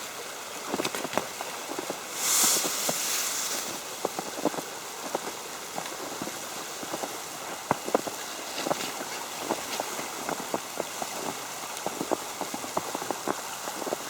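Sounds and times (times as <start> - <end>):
steady hiss: 0.0 - 14.0
wet snow ticking on umbrella: 0.7 - 14.0
brief loud hiss: 2.1 - 3.9.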